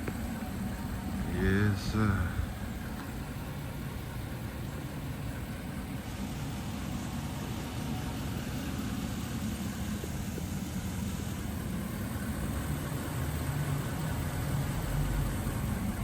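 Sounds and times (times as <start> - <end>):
engine and road rumble: 0.0 - 16.0.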